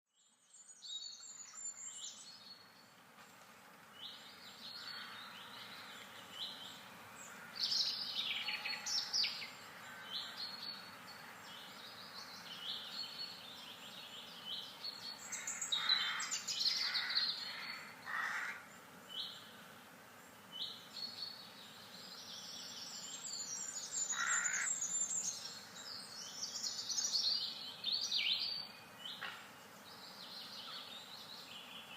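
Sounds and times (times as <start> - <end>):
birds chirping and singing: 3.9 - 19.6, 20.3 - 31.9
harsh bird calls: 15.1 - 18.7, 23.5 - 25.8.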